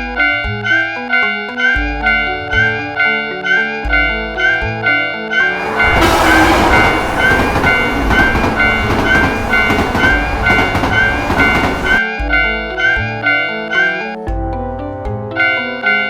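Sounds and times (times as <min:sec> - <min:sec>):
background music: 0:00.0 - 0:16.0
train passing rumble: 0:05.4 - 0:12.0.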